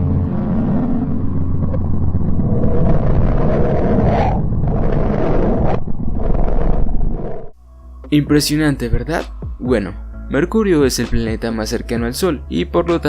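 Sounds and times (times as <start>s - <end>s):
dense rumbling roar: 0.0s - 7.6s
steady low hum: 0.0s - 12.1s.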